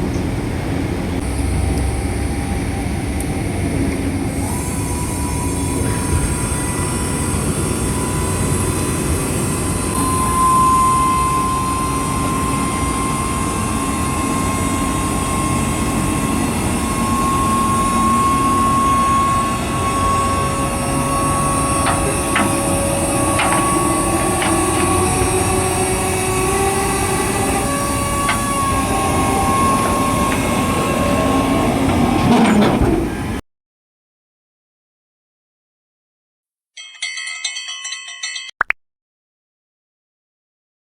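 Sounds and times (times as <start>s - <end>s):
steady high whine: 0.0s - 32.2s
heavy machinery rumbling: 0.0s - 33.4s
sharp clicks and knocks: 21.8s - 25.2s.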